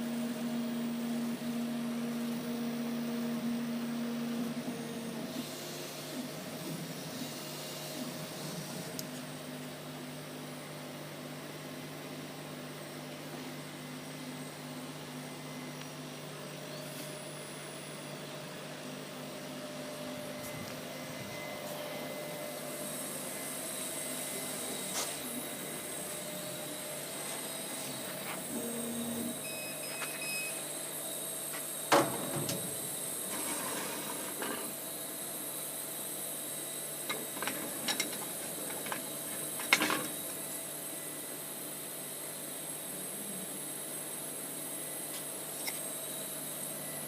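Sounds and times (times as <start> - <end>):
laser cutting machine humming: 12.7 - 47.0.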